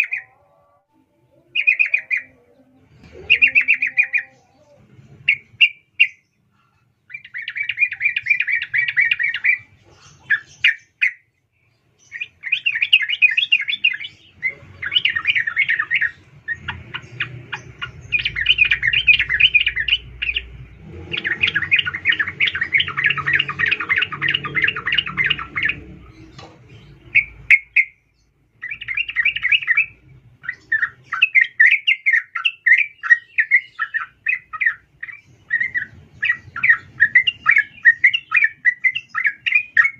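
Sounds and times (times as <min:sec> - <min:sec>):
bulbul chattering calls: 0:01.6 - 0:06.3, 0:07.1 - 0:11.2, 0:12.0 - 0:28.0, 0:28.6 - 0:39.9.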